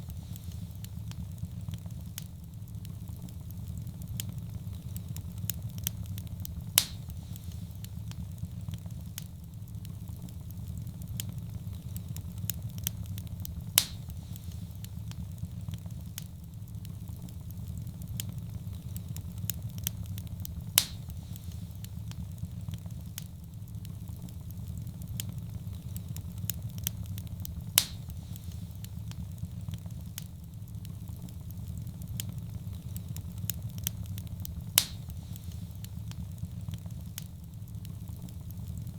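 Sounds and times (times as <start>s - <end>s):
wood fire roaring and crackling: 0.0s - 38.9s
sharp fire pop: 6.5s - 8.2s, 13.6s - 15.2s, 20.7s - 22.2s, 27.6s - 29.2s, 34.6s - 36.2s.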